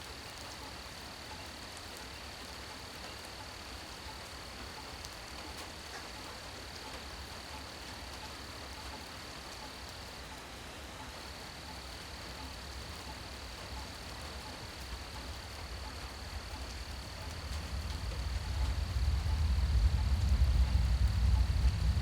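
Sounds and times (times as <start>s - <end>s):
night insects droning: 0.0s - 22.0s
rain pattering: 0.0s - 22.0s
low rumble: 16.7s - 22.0s.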